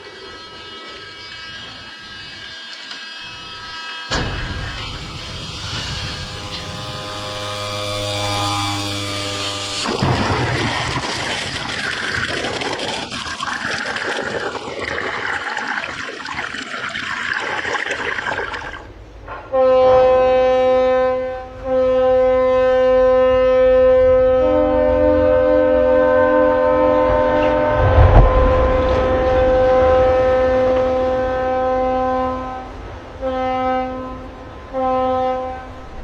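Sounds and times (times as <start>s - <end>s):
steady rushing noise: 3.2s - 19.3s, 26.8s - 33.2s
loud horn blast: 3.6s - 10.5s, 19.3s - 36.0s.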